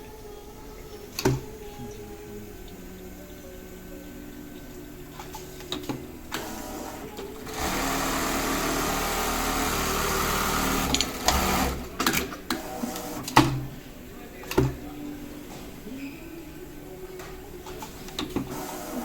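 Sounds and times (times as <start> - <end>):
embroidery machine stitching: 4.9 - 13.8, 17.6 - 19.0
machine clicks and knocks: 5.2 - 13.7.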